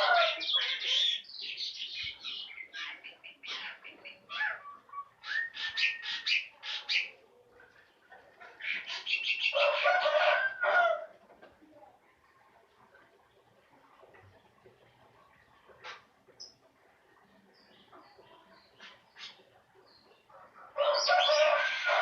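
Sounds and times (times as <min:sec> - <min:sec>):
songbird chattering song: 0:00.2 - 0:07.2, 0:08.6 - 0:09.6, 0:15.7 - 0:21.5.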